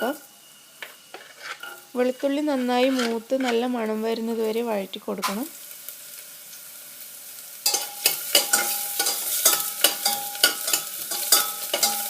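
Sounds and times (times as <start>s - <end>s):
garlic sizzling in oil: 0.0s - 12.0s
spatula knocking and scraping pan: 0.8s - 1.8s, 2.4s - 3.7s, 7.7s - 12.0s.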